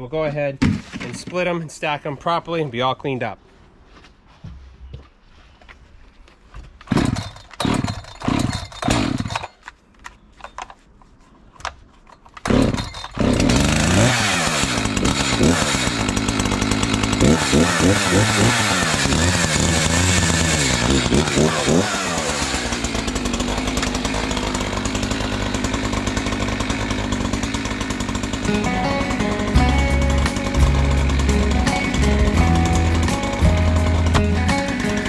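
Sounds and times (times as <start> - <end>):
chainsaw engine revving: 6.9 - 9.3, 12.5 - 35.0.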